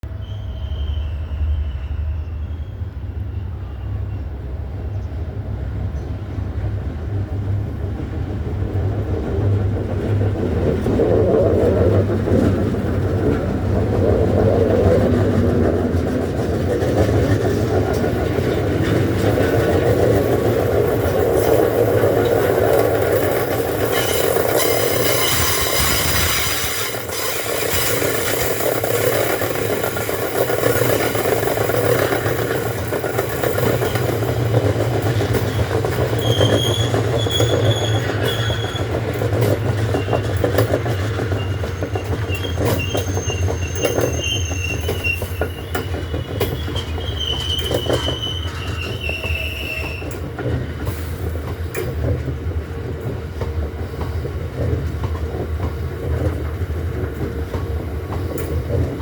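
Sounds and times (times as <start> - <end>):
freight train rumbling past: 0.0 - 59.0
wheels clicking over rail joints: 8.6 - 59.0
high thin wheel squeals: 23.8 - 28.7, 35.5 - 39.0, 39.9 - 50.2.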